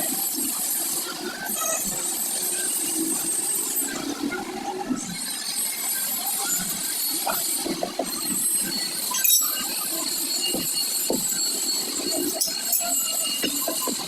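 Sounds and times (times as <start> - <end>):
tools clinking and knocking: 10.4 - 14.0.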